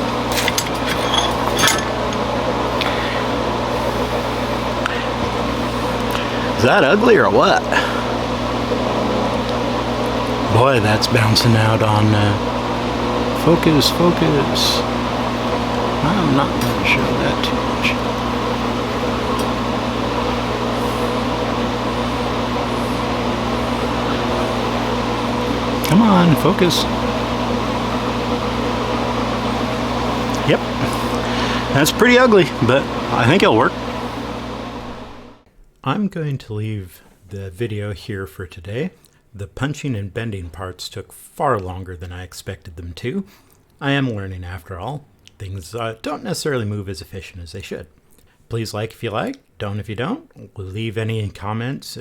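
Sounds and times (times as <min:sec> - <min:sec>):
steady machine hum: 0:00.0 - 0:35.5.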